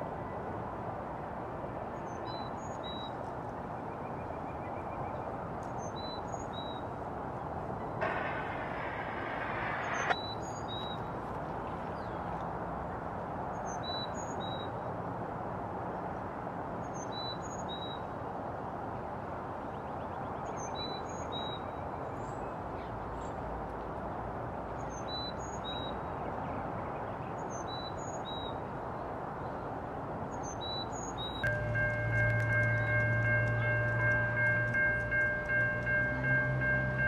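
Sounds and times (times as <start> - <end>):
freight train rumbling: 8.0 - 10.2, 31.4 - 37.0.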